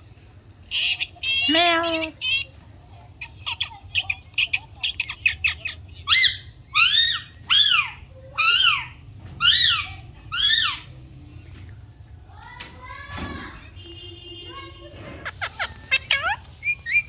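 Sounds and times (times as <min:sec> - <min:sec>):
parakeet chirping: 0:00.6 - 0:02.6, 0:03.2 - 0:11.0, 0:15.2 - 0:17.0
parakeet squawking: 0:00.7 - 0:02.6, 0:03.2 - 0:11.0, 0:15.2 - 0:17.0.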